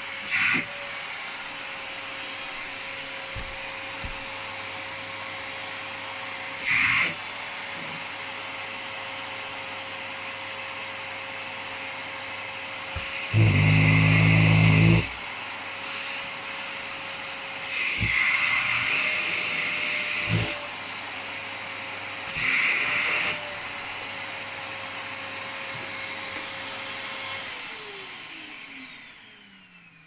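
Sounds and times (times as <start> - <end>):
vacuum cleaner whine: 0.0 - 30.0
motor winding down: 27.3 - 30.0.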